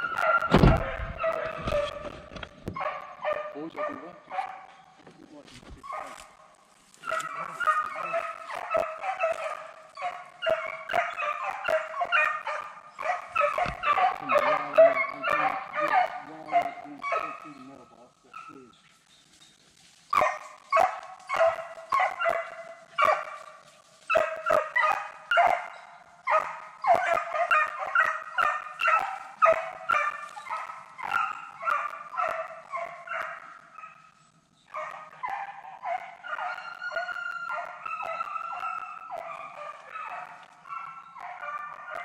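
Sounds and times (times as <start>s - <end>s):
hounds barking: 0.0s - 42.0s.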